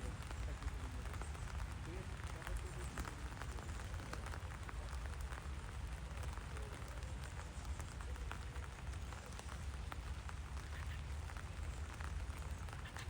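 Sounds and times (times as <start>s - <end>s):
raindrop ticks: 0.0s - 13.0s
steady rain falling: 0.0s - 13.0s.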